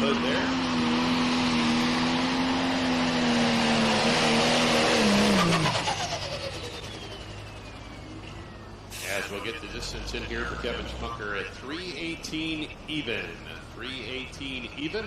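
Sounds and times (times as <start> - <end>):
turbo whine winding down: 5.0 - 11.2.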